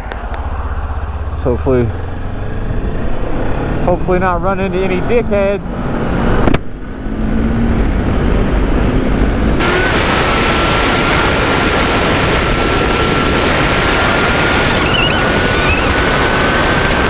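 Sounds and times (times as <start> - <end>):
motorcycle engine: 0.0 - 17.0
wind rush on microphone: 2.2 - 17.0
thin rising whine: 9.6 - 17.0.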